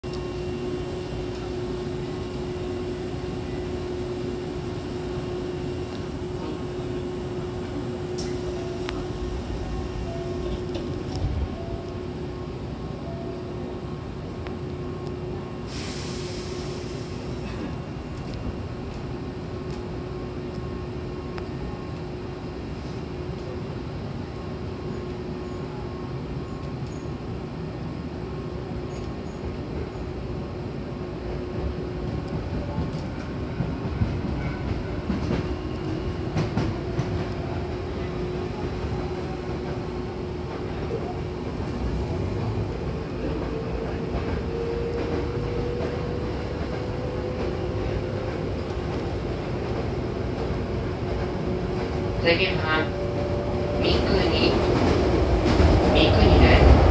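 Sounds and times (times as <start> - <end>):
train running noise with motor hum: 0.0 - 56.9
air hiss: 15.7 - 17.3.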